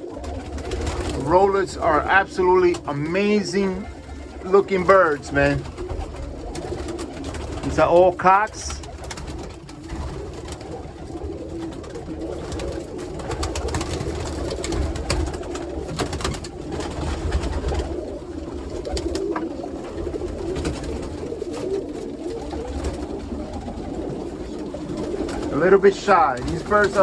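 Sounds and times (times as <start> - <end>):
pigeons cooing: 0.0 - 27.0
wing flutters: 0.0 - 27.0.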